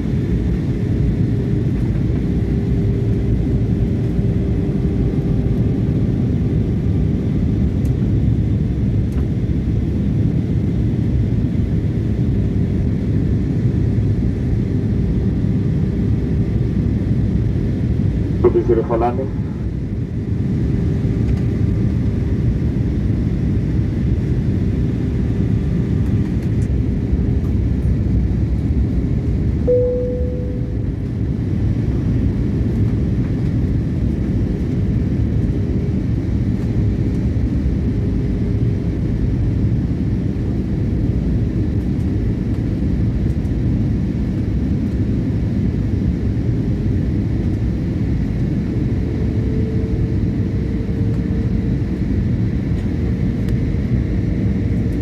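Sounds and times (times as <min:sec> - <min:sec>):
airliner cabin rumble: 0:17.6 - 0:35.8
faint steady hum: 0:18.4 - 0:19.7, 0:29.7 - 0:31.1
short tone: 0:29.7 - 0:31.1.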